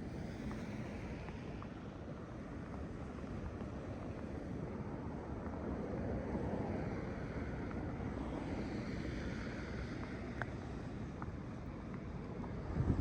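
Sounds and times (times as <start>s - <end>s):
traffic on a snowy street: 0.0s - 13.0s
wind buffeting microphone: 12.5s - 13.0s.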